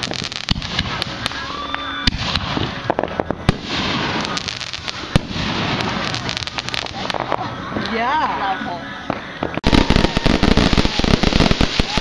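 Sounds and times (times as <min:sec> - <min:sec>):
fireworks bangs and pops: 0:00.0 - 0:08.0, 0:09.1 - 0:12.0
fizzing crackle of fireworks: 0:00.0 - 0:08.3, 0:09.0 - 0:12.0.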